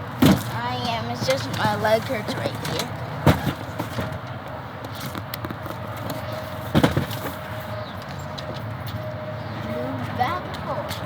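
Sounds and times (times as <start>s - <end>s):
heavy thump: 6.7s - 7.3s.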